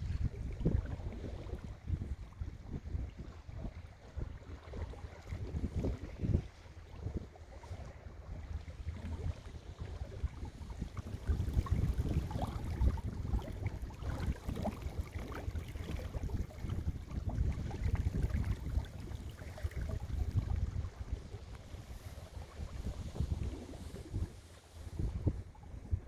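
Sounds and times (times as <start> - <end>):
water splashing along boat hull: 0.0 - 26.0
wind buffeting microphone: 0.0 - 26.0.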